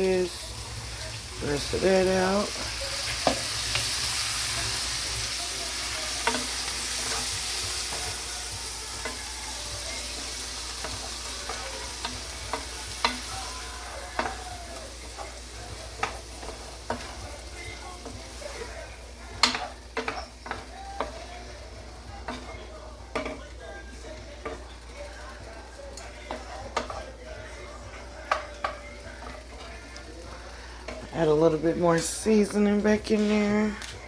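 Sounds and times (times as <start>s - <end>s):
food sizzling in a pan: 0.0s - 34.0s
utensil tapping against pan: 3.1s - 3.9s, 5.9s - 23.5s, 26.0s - 30.0s.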